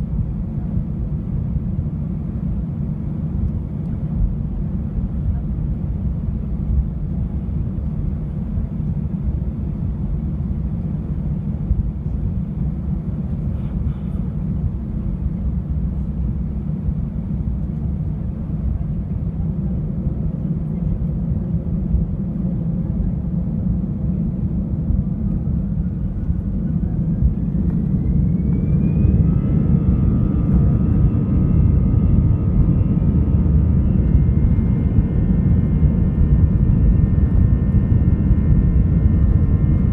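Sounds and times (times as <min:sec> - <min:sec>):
jet engines rumbling: 0:00.0 - 0:39.9
jet engine whine rising: 0:24.8 - 0:39.9.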